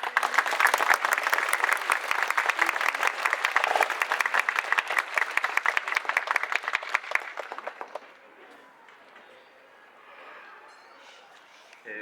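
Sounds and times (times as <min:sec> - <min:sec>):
crowd clapping: 0:00.0 - 0:09.2.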